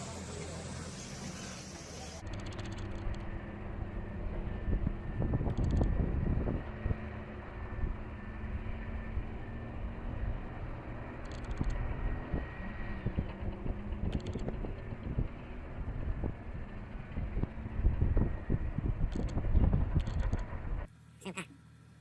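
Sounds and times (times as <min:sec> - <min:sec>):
heavy machine engine running: 0:00.0 - 0:21.8
wind buffeting microphone: 0:03.9 - 0:20.9.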